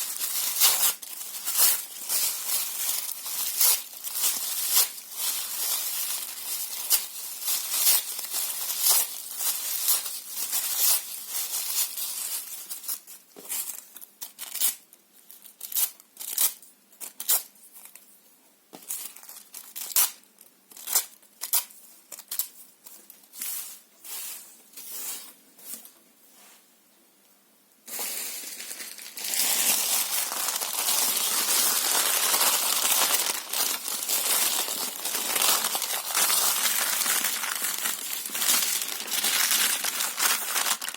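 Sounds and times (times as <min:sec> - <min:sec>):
paper tearing and crumpling: 0:00.0 - 0:12.2, 0:27.9 - 0:40.9.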